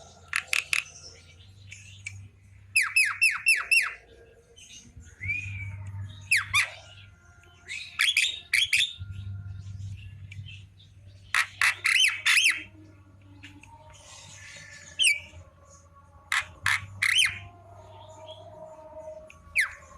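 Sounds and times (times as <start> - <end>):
bird chirps and squawks: 6.3 - 7.0, 11.3 - 12.7.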